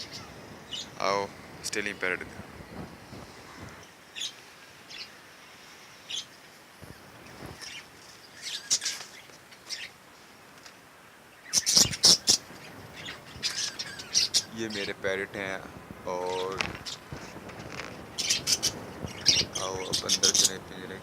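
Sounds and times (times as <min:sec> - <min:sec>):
budgerigars chirping: 0:00.0 - 0:01.0, 0:06.1 - 0:10.0, 0:11.4 - 0:15.6, 0:16.2 - 0:17.1, 0:17.9 - 0:21.0.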